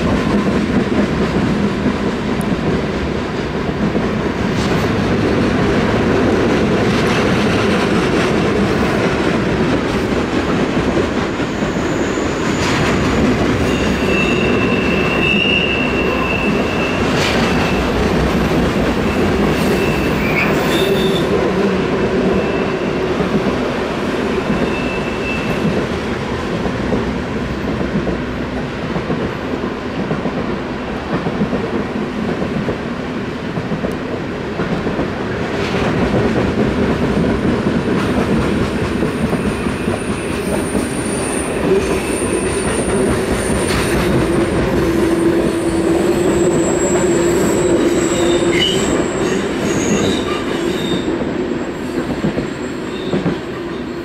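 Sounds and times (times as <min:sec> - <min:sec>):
steel wheels rumbling on rail: 0:00.0 - 0:54.0
train knocks: 0:00.0 - 0:54.0
high wheel squeals: 0:13.6 - 0:17.9, 0:19.0 - 0:21.3, 0:24.6 - 0:25.6, 0:45.0 - 0:54.0.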